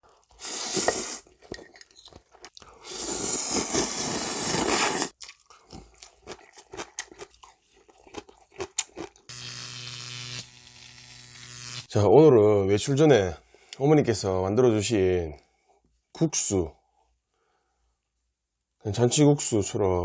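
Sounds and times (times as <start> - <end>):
slurping noodles: 0.1 - 1.5, 2.7 - 7.4
crunching bites and chewing: 1.2 - 11.1.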